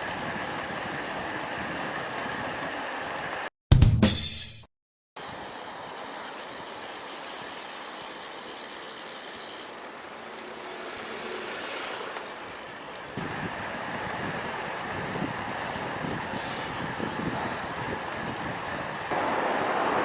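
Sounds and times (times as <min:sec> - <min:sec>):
road noise: 0:05.2 - 0:20.0
rushing wind: 0:13.1 - 0:20.0.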